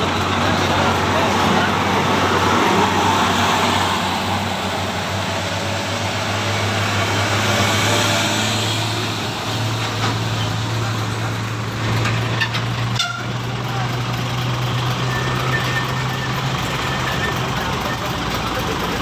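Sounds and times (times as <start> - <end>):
diesel vehicle engine hum: 0.0 - 19.0
tyre and road roar: 0.0 - 19.0.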